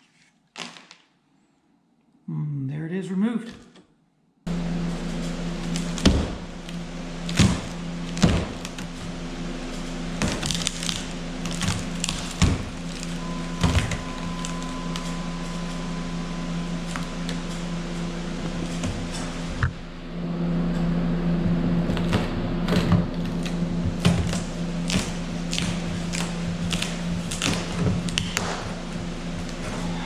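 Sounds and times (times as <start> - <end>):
steady low hum: 4.4 - 30.0.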